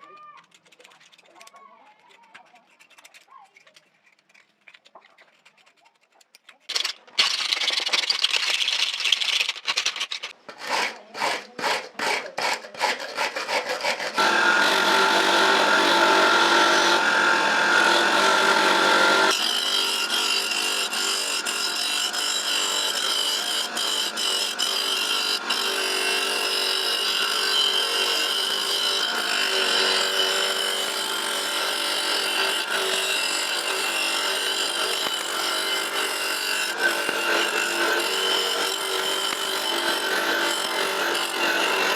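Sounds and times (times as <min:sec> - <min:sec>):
hand scraping metal: 0:00.0 - 0:14.2
small power tool grinding: 0:00.4 - 0:41.9.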